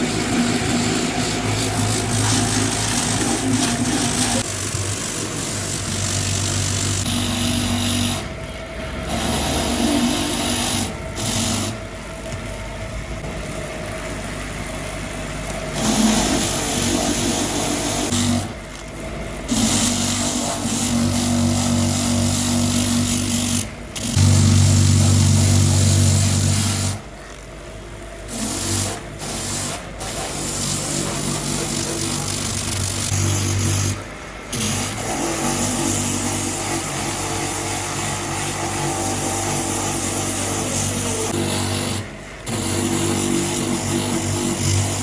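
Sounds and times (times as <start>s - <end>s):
power tool whining: 0.0s - 8.4s.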